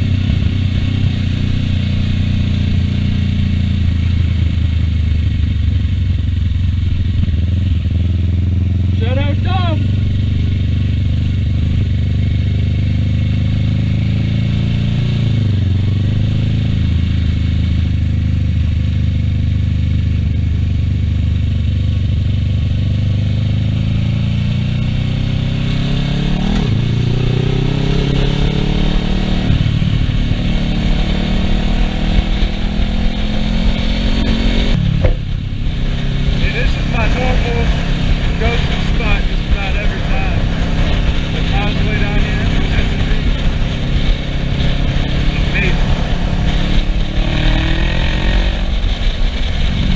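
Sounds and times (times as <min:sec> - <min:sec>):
motorcycle engine running: 0:00.0 - 0:49.9
rushing wind noise: 0:22.5 - 0:49.9.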